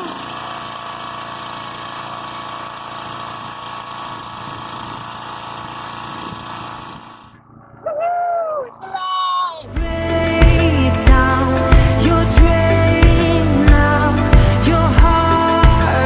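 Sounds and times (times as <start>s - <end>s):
air compressor running: 0.0s - 7.5s, 9.7s - 16.0s.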